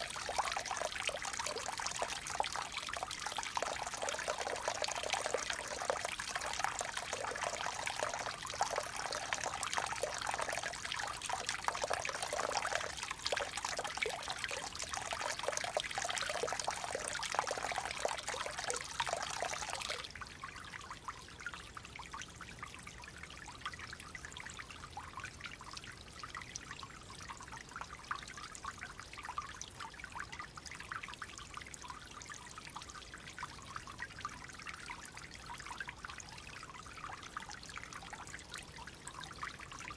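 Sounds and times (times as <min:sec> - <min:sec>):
water flowing in a stream: 0:00.0 - 0:39.9.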